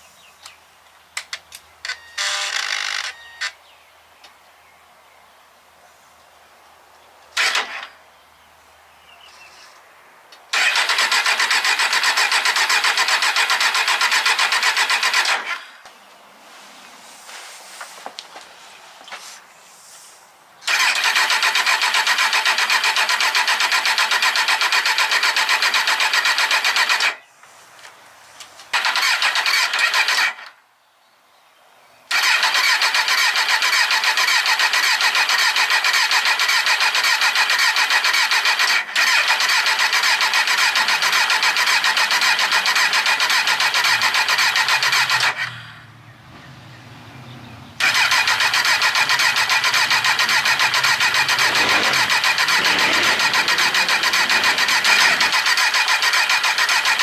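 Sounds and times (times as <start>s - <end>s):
electric starter cranking engine: 7.4s - 7.9s, 10.5s - 15.8s, 20.6s - 27.3s, 28.7s - 30.5s, 32.1s - 45.8s, 47.8s - 57.0s.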